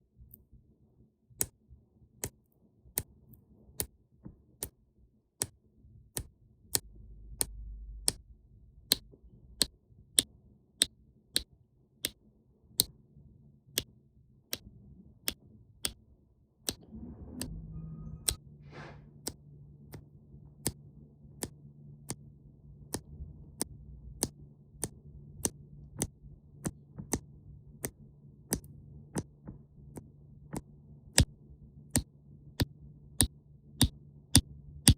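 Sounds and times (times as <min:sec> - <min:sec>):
low hum: 0:06.8 - 0:09.6, 0:16.8 - 0:34.9
steady ticks: 0:21.4 - 0:34.9.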